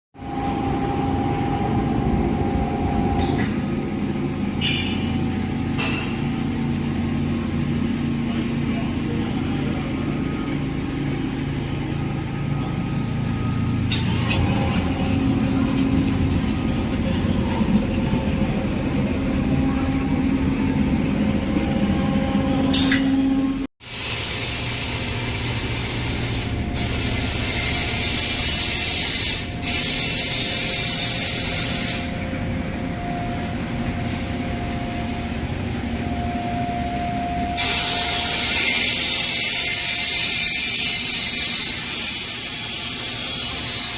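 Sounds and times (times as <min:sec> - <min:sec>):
motor and fan hum: 0:00.2 - 0:43.9
hissing air: 0:23.8 - 0:32.2.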